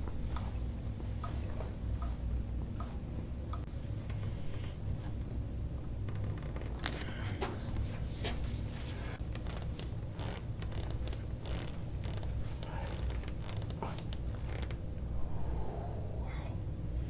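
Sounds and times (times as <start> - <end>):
massage table creaking: 5.9 - 15.4.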